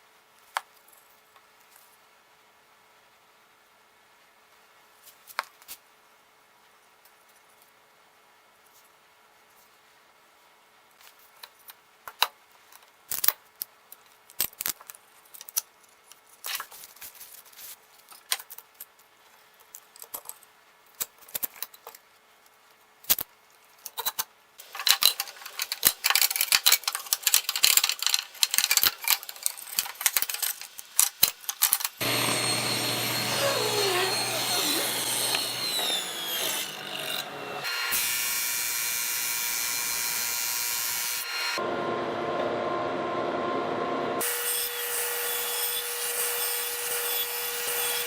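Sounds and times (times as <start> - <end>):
power tool humming: 32.0 - 48.0.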